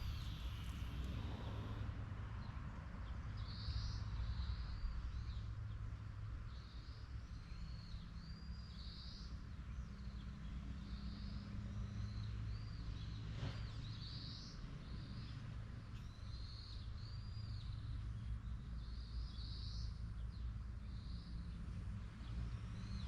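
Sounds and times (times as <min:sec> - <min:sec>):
small birds chirping: 0:00.0 - 0:01.8
steady low rumble: 0:00.0 - 0:02.6.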